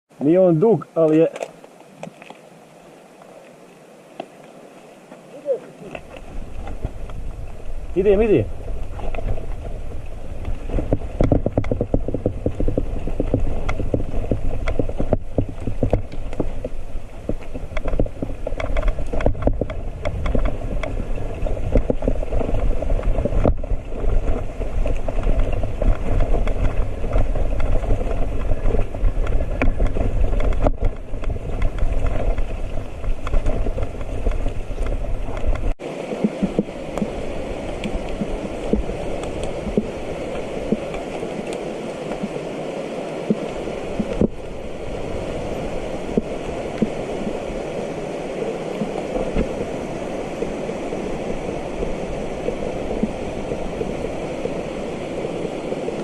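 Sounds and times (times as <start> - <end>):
river water rushing: 0.2 - 56.0
wind rumble on microphone: 5.8 - 56.0
bike rattling over rough ground: 6.0 - 41.7.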